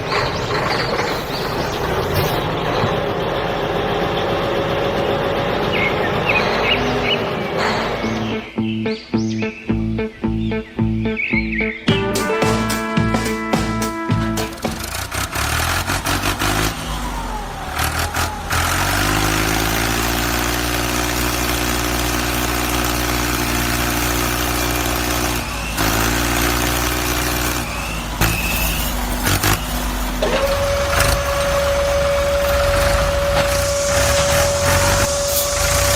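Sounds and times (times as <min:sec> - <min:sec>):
vehicle engine running: 0:00.0 - 0:35.9
steady high tone: 0:11.9 - 0:14.8, 0:30.2 - 0:35.9.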